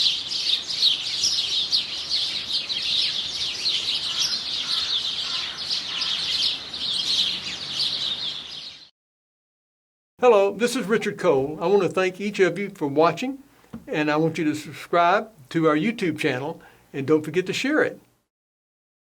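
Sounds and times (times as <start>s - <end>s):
small birds chirping: 0.0s - 8.9s.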